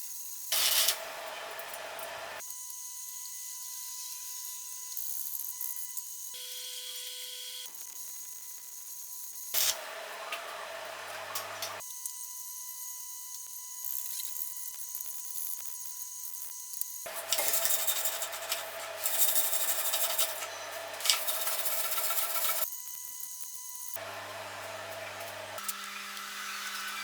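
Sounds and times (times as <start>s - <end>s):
welding arc crackling and hissing: 0.5s - 2.4s, 9.5s - 9.9s, 13.4s - 27.0s.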